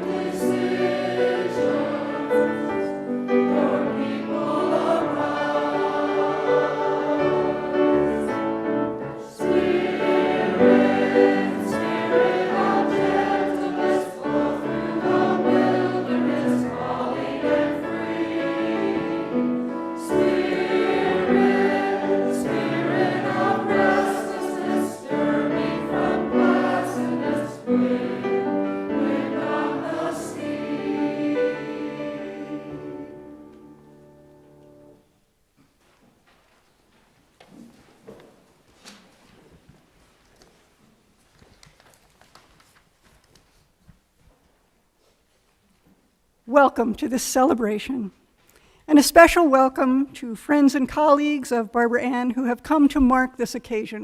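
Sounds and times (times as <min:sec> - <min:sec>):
choir singing in parts: 0:00.0 - 0:35.0.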